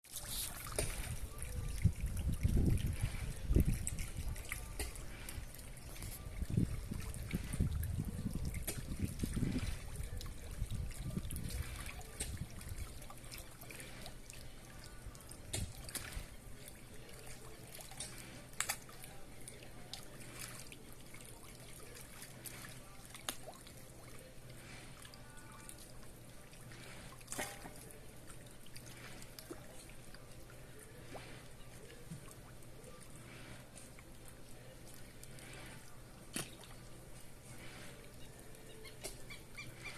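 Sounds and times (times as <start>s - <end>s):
small water splashes: 0.0s - 39.9s
water trickling: 0.1s - 39.9s.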